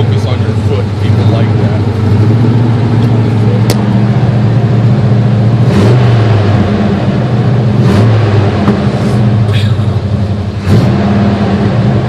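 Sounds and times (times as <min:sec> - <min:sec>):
pickup truck engine running: 0:00.0 - 0:12.0.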